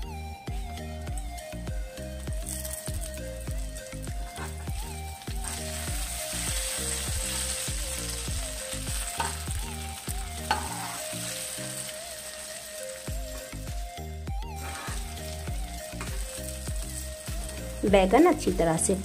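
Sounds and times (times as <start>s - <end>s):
background music with a beat: 0.0s - 19.0s
eggplants sizzling in hot oil: 1.0s - 19.0s
spatula scraping a pan: 4.2s - 7.6s, 10.4s - 12.5s, 14.5s - 16.2s.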